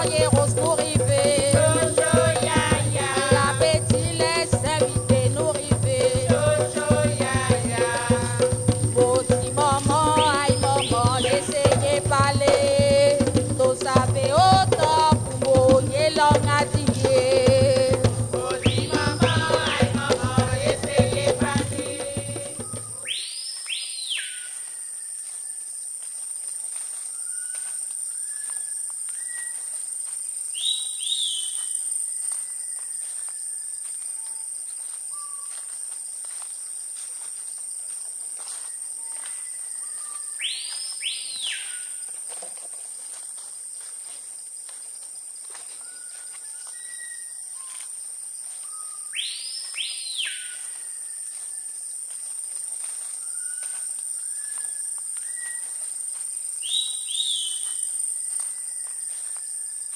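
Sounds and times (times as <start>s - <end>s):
high-pitched insect drone: 0.0s - 25.8s, 46.8s - 59.9s
birds whistling: 10.1s - 11.6s, 18.5s - 19.9s, 22.5s - 25.6s, 27.1s - 29.7s, 30.6s - 34.4s, 39.0s - 42.0s, 45.8s - 47.8s, 48.6s - 51.8s, 53.2s - 55.8s, 56.6s - 59.9s
loud swooping bird whistles: 22.6s - 25.0s, 30.6s - 31.6s, 56.6s - 57.7s.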